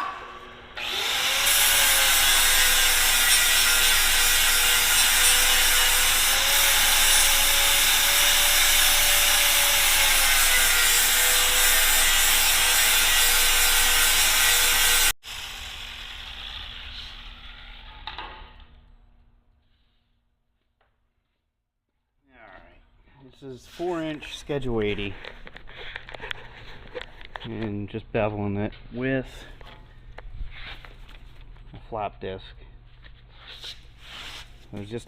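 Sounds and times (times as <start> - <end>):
angle grinder grinding metal: 0.4 - 17.9.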